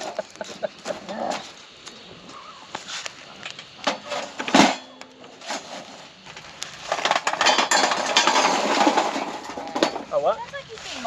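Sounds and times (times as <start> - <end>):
cookware and utensils clinking: 7.0 - 10.1.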